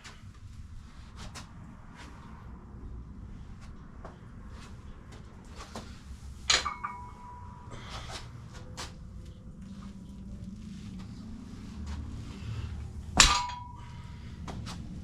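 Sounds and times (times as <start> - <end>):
metallic clank ringing: 6.5 - 7.9, 13.2 - 14.1.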